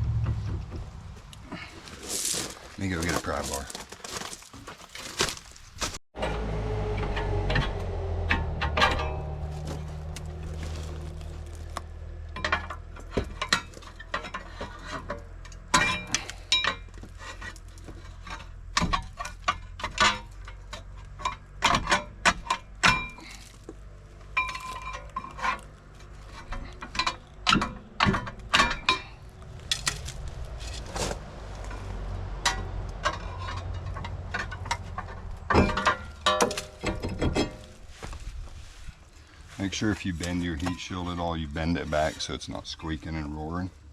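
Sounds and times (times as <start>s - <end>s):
hand tools clanking on metal: 7.0s - 38.1s, 39.6s - 43.4s.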